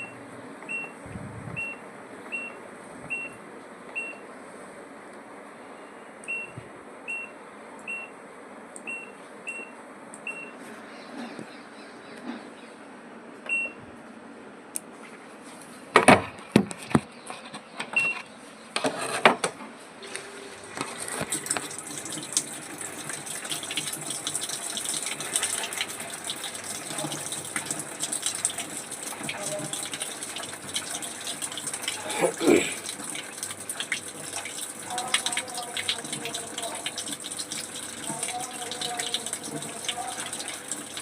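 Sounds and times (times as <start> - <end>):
control panel beeps: 1.6 - 3.4, 6.3 - 7.3, 10.3 - 10.6, 13.5 - 13.8
water rushing into tub: 20.4 - 41.0.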